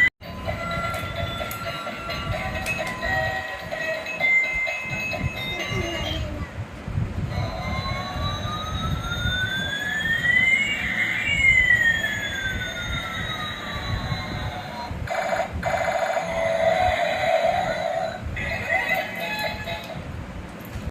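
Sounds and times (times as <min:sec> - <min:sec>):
toy jet electronic sound effect: 0:07.3 - 0:20.0.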